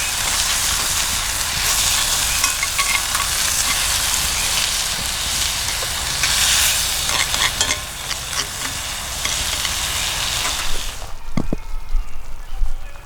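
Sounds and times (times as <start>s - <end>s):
food sizzling in a pan: 0.0s - 11.2s.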